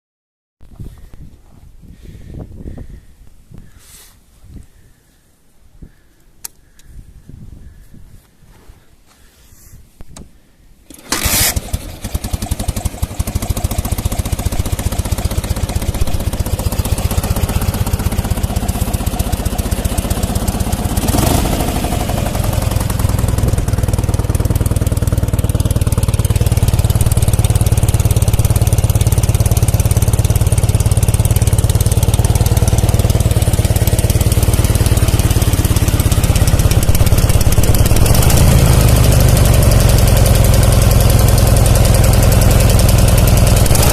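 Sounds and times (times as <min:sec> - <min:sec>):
motorcycle engine starting and running: 0:10.9 - 0:43.9.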